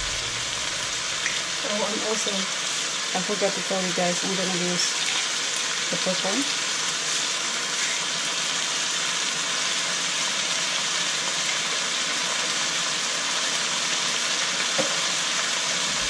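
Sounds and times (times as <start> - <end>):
chicken sizzling in a frying pan: 0.0 - 16.0.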